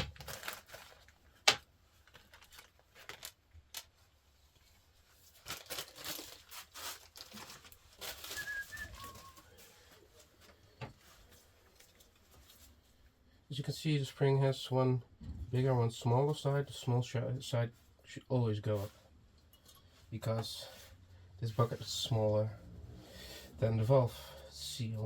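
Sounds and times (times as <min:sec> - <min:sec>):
soft scraping and rustling: 0:04.4 - 0:13.1.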